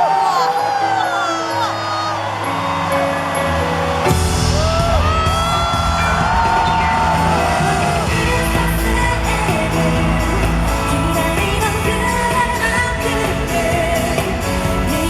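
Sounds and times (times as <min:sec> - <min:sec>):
live pop band music: 0:00.0 - 0:15.0.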